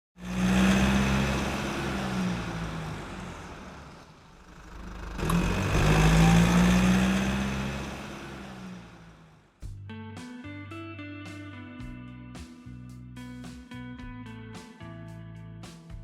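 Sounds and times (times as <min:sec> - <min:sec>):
car engine running: 0:00.2 - 0:09.8.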